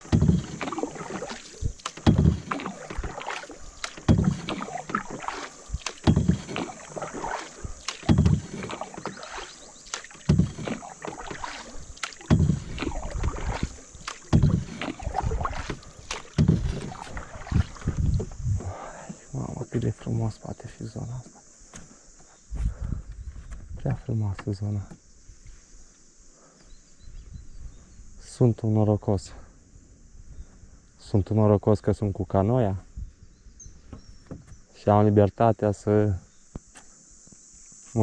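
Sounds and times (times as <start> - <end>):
water splashing and dripping: 0.0 - 18.4
paddle stroking through water: 0.0 - 18.8.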